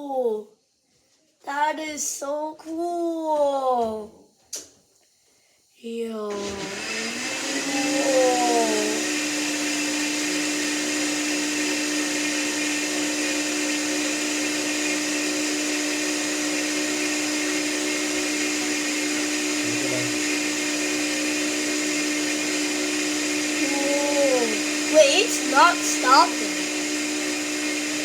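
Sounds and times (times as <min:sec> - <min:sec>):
electric motor hum: 0:06.3 - 0:28.0.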